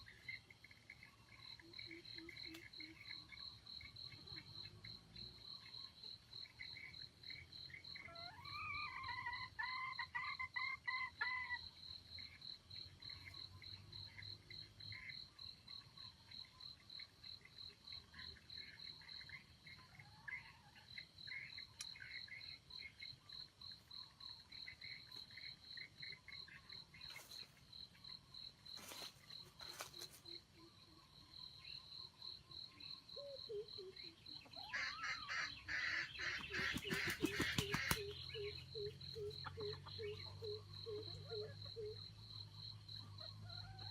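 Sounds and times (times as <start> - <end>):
faint pulsing animal calls: 0.0 - 43.9
insects trilling: 0.0 - 43.9
rapid rattling call: 34.7 - 39.9.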